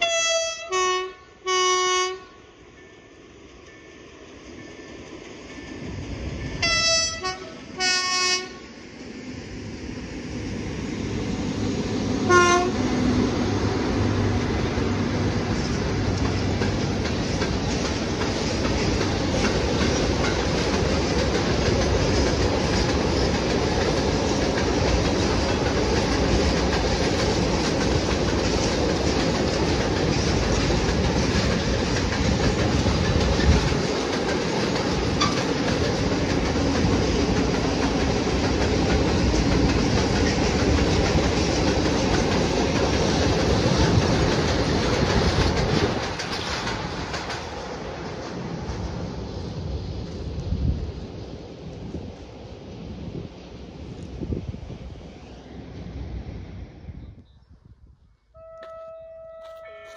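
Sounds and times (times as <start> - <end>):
locomotive horn blasts: 0.0 - 2.4, 6.6 - 8.6, 12.2 - 12.9, 58.4 - 59.9
train rumbling past: 0.0 - 57.2.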